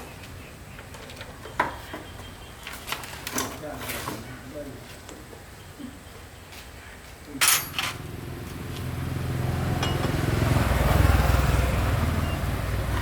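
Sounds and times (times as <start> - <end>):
sharp metallic clack: 7.4 - 8.0.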